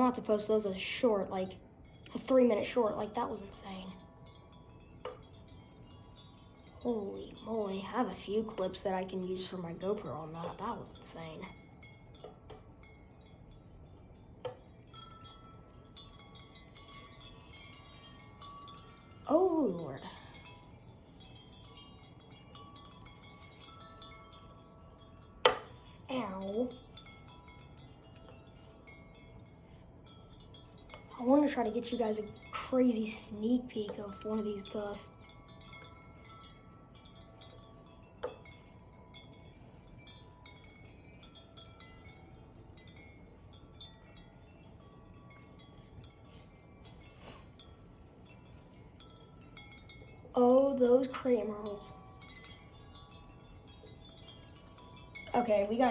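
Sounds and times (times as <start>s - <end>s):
low rumble of wind: 0.0s - 55.9s
wind chimes ringing: 0.0s - 55.9s.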